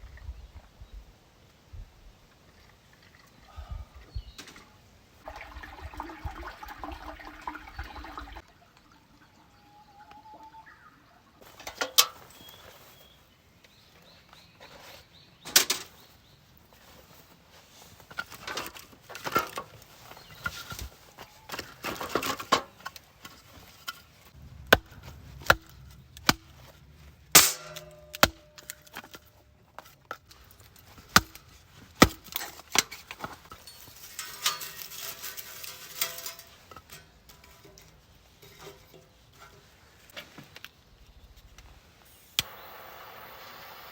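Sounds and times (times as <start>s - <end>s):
camp gear knocking and clanking: 11.4s - 13.1s, 16.7s - 40.6s.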